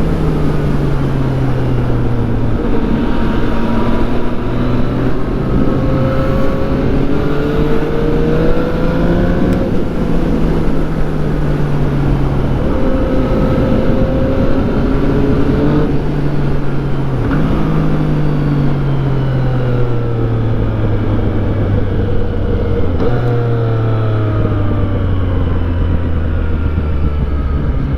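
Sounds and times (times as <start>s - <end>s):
wind rushing: 0.0s - 18.6s
motorcycle engine under way: 0.0s - 27.9s.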